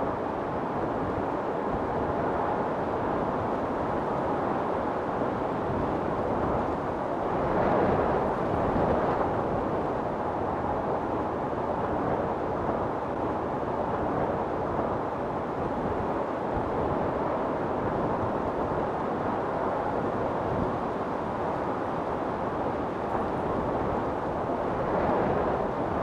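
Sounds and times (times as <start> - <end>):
storm wind blowing: 5.6 - 26.0.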